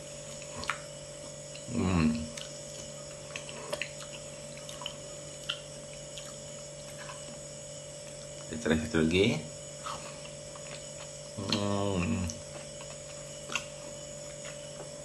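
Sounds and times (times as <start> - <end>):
man chewing with mouth clicks: 0.0 - 8.5, 9.8 - 15.0
low electrical hum: 0.0 - 15.0
man humming mmm: 1.7 - 2.4, 11.4 - 12.5.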